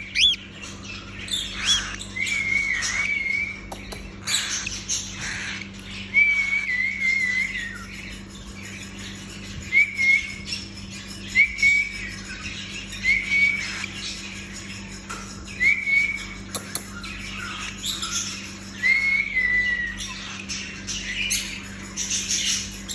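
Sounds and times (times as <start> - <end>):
cockatiel whistled calls: 0.0 - 0.4
soft bird chirps: 0.0 - 4.8.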